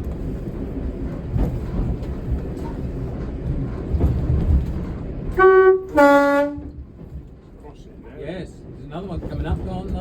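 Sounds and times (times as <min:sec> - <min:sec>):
diesel railcar rumbling: 0:00.0 - 0:10.0
train horn: 0:05.3 - 0:06.8.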